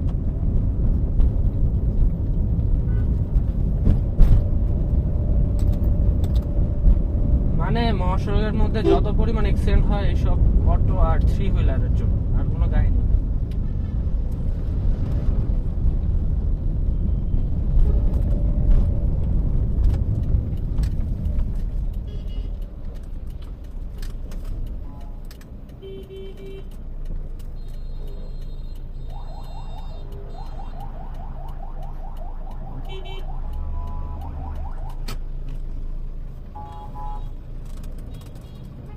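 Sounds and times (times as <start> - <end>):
car road and engine rumble: 0.0 - 38.9
short beeps: 27.6 - 30.9.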